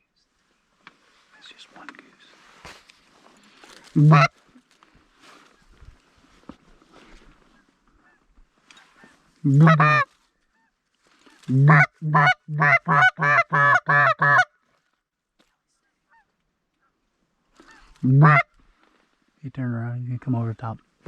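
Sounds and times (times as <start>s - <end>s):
goose call clucks: 4.0s - 4.3s, 9.0s - 10.7s, 11.5s - 14.5s, 17.6s - 18.5s
goose call honk: 4.0s - 4.3s, 9.0s - 10.7s, 11.5s - 14.5s, 17.6s - 18.5s.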